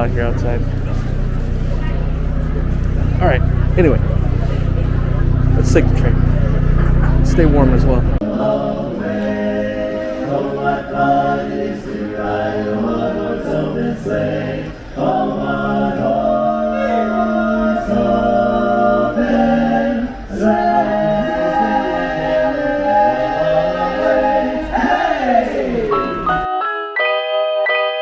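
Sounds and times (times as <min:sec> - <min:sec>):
a cappella choir singing: 0:08.2 - 0:26.5.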